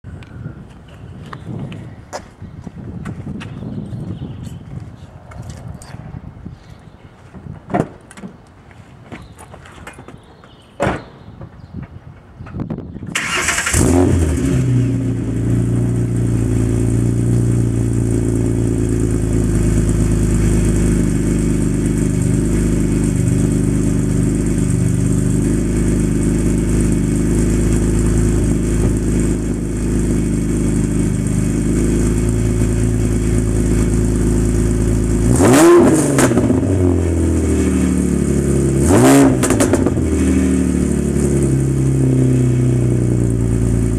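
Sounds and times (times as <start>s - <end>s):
car engine starting and idling: 13.1s - 43.9s
car engine revving: 13.2s - 43.9s.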